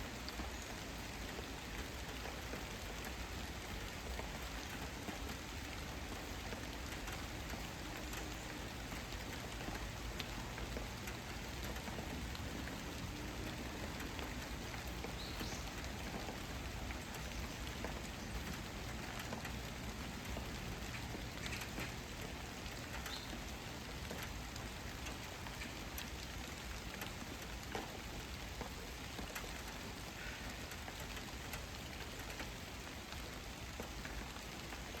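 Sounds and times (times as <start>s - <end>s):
rain drops ticking on surface: 0.0s - 35.0s.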